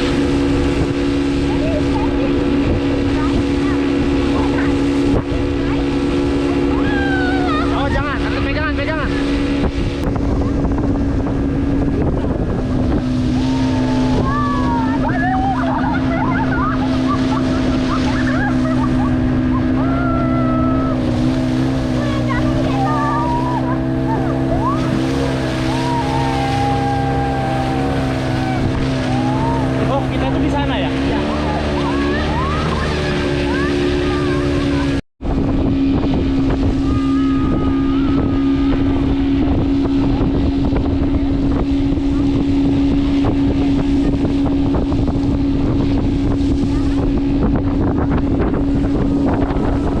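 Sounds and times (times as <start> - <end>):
motorboat engine running: 0.0 - 50.0
wind buffeting microphone: 0.0 - 50.0
high voices shouting: 19.6 - 21.1, 22.1 - 30.2.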